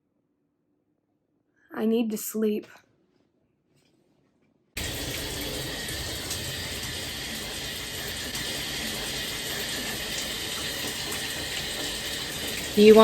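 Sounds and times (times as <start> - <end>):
shower water running: 4.8 - 13.0.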